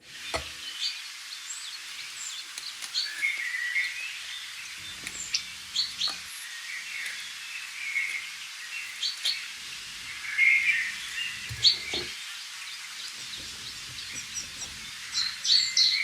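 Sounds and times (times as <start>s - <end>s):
background hiss: 0.0s - 16.0s
small birds chirping: 0.1s - 16.0s
light clicks and knocks: 13.2s - 16.0s.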